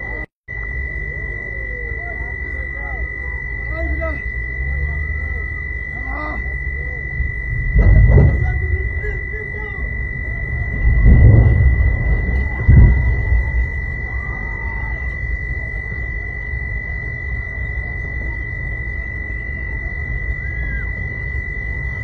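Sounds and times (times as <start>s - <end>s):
high-pitched tone: 0.0s - 22.0s
steady low rumble: 0.0s - 22.0s
heavy blast: 6.5s - 22.0s
heavy thump: 7.4s - 9.3s, 10.2s - 14.1s.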